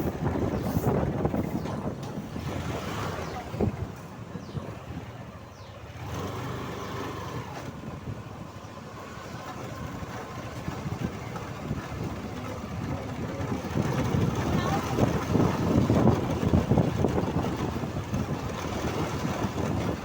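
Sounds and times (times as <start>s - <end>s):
road and wind noise: 0.0s - 20.0s
motorcycle engine running: 5.6s - 20.0s.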